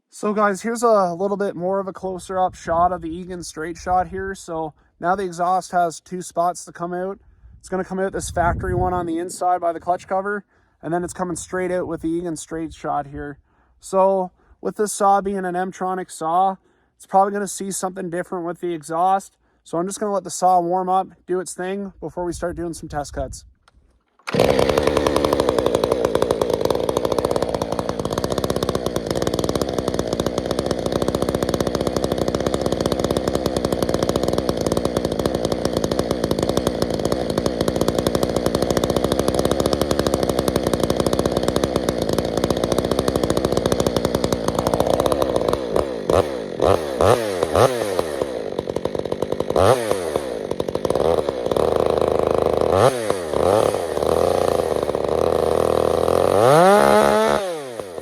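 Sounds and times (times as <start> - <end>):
chainsaw idling: 24.2 - 58.0
chainsaw revving: 24.2 - 58.0.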